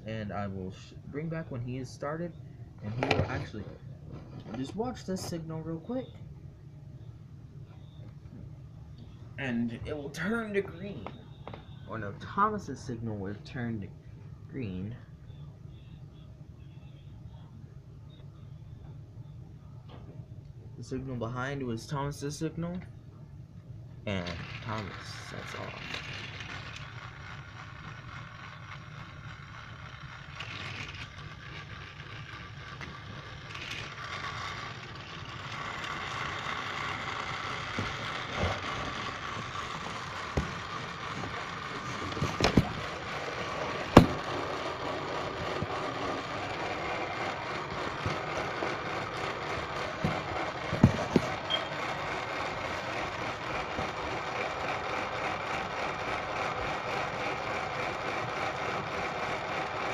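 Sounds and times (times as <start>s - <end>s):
toy train motor whirring: 24.1s - 59.9s
wheels clicking over track joints: 24.2s - 59.9s.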